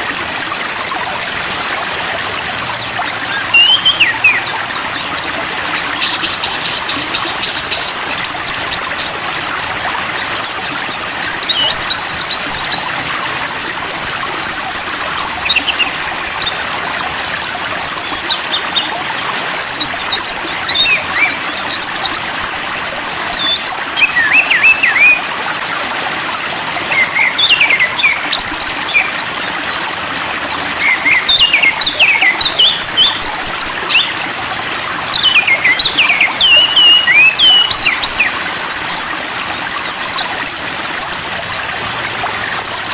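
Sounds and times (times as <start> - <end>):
songbirds chirping and whistling: 2.7 - 9.2, 10.4 - 16.6, 19.7 - 25.3, 26.9 - 29.6, 30.4 - 34.2, 35.1 - 41.7.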